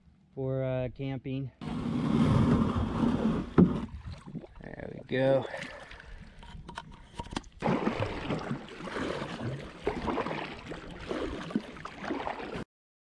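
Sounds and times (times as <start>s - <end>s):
paddle splashing in water: 1.6s - 4.7s, 5.4s - 12.6s.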